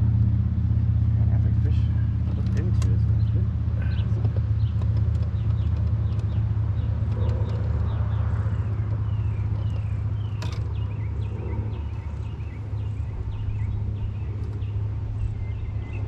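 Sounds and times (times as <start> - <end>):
low rumble: 0.0 - 16.0
small birds chirping: 1.2 - 16.0.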